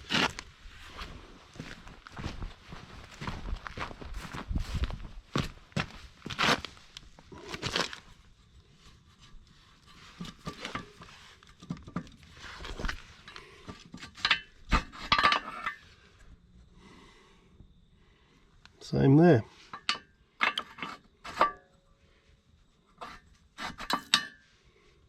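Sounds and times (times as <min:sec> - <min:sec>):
footsteps: 0:00.0 - 0:08.0
metallic clinks and scrapes: 0:08.8 - 0:16.2, 0:19.6 - 0:21.9, 0:23.0 - 0:24.5.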